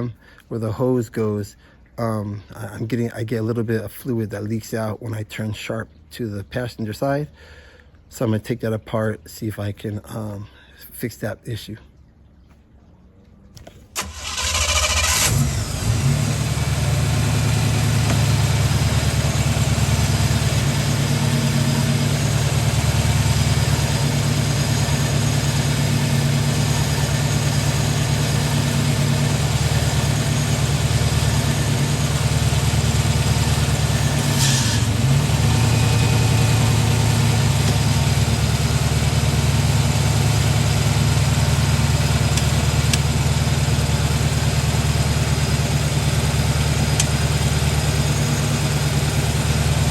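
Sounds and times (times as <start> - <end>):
engine idling: 14.0 - 49.9.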